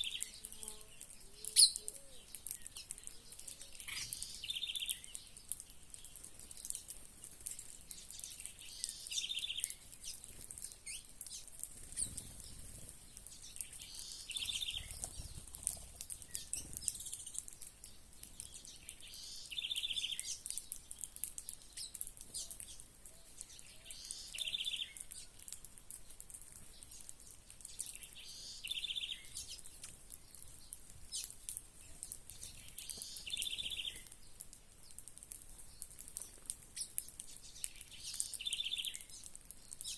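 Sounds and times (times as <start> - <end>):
high-pitched bird chirping: 1.3 - 2.3
bird trilled call: 1.4 - 2.3.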